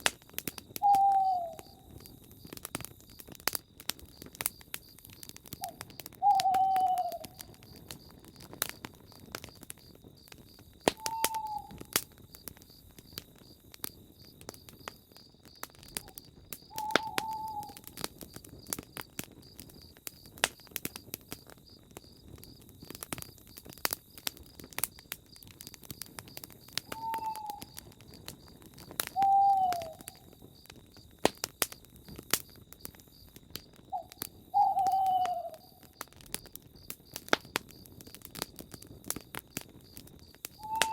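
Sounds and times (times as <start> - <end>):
campfire crackling and popping: 0.0 - 40.9
bird hooting: 0.8 - 1.8, 5.6 - 7.4, 11.0 - 11.8, 16.7 - 17.8, 26.9 - 27.7, 29.1 - 30.2, 34.0 - 35.8, 40.6 - 40.9.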